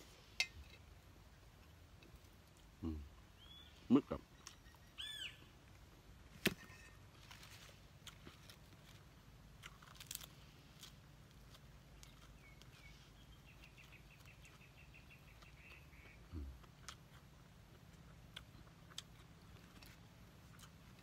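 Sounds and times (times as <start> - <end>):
faint bird chirps and trill: 3.4 - 5.6, 12.0 - 16.5.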